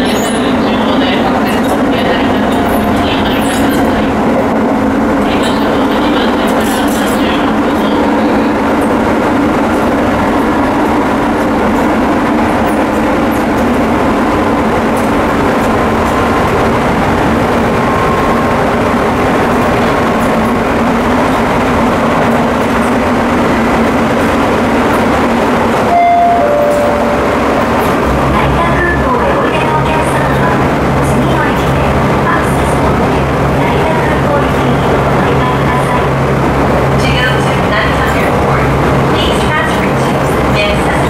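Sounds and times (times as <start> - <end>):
train wheels rumbling on rail: 0.0 - 41.0
tone stepping down in pitch: 25.9 - 27.5.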